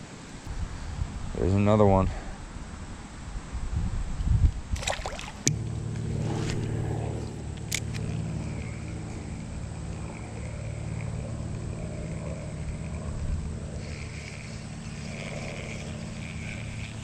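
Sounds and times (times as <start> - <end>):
motor engine droning: 5.0 - 17.0.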